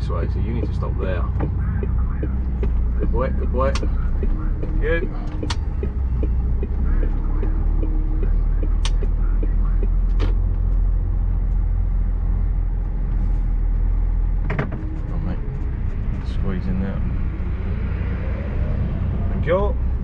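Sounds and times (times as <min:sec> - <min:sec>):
lorry diesel engine rumbling: 0:00.0 - 0:20.0
sharp clicks: 0:03.7 - 0:04.4, 0:07.8 - 0:09.2.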